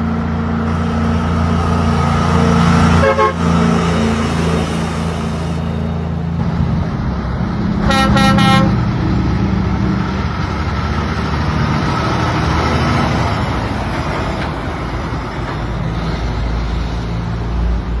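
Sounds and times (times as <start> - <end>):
truck engine running: 0.0 - 18.0
truck horn toot: 1.6 - 5.6, 7.8 - 8.9.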